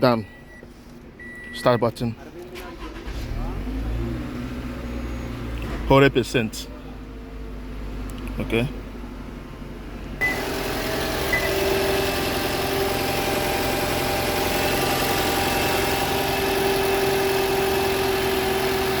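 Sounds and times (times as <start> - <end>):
car engine idling: 6.2 - 19.0.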